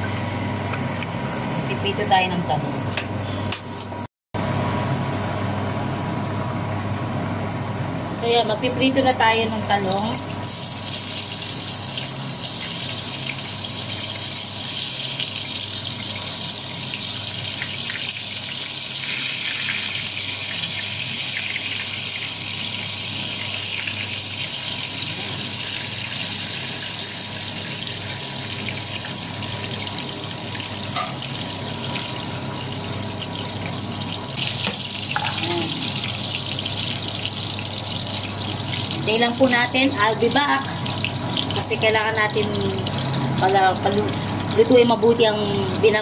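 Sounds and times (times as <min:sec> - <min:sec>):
eggplant frying in hot oil: 0:09.3 - 0:46.0
pan of food boiling: 0:09.6 - 0:46.0.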